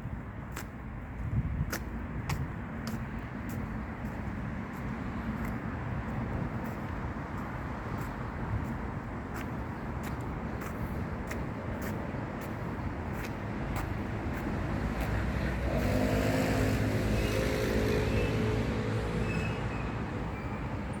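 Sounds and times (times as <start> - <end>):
outdoor background noise: 0.0 - 21.0
car passing: 13.6 - 21.0.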